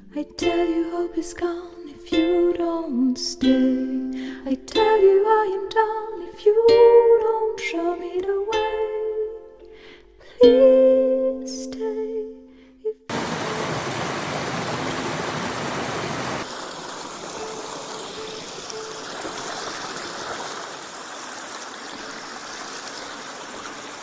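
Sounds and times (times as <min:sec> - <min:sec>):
creek water rushing: 0:13.1 - 0:24.0.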